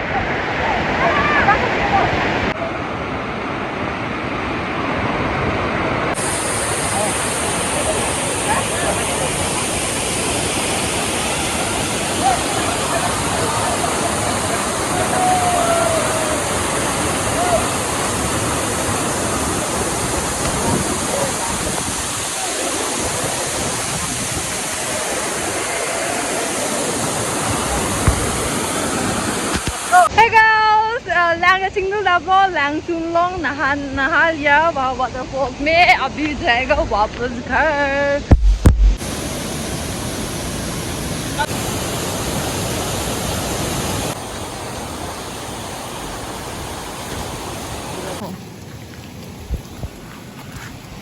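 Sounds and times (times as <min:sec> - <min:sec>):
waterfall rushing: 0:00.0 - 0:30.2, 0:38.3 - 0:51.0
brief knock: 0:38.3 - 0:39.0.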